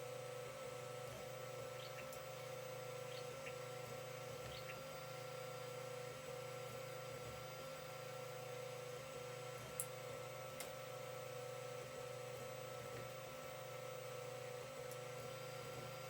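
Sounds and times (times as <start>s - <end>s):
printer motors and fans humming: 0.0s - 16.0s
small ticks: 1.8s - 2.5s, 3.1s - 3.7s, 4.4s - 4.9s, 9.7s - 10.0s.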